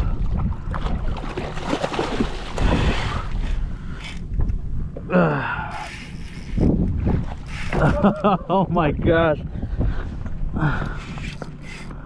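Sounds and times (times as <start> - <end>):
water sloshing around kayak: 0.0 - 5.0
wind buffeting microphone: 0.0 - 12.0.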